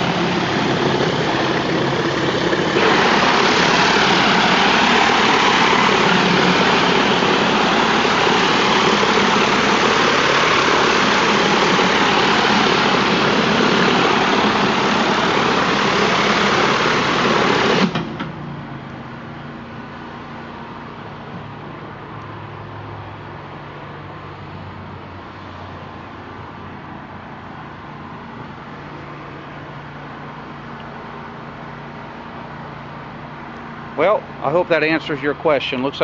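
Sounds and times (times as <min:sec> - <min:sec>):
pressure washer spray hissing: 0:00.0 - 0:18.0
engine running: 0:00.0 - 0:36.0.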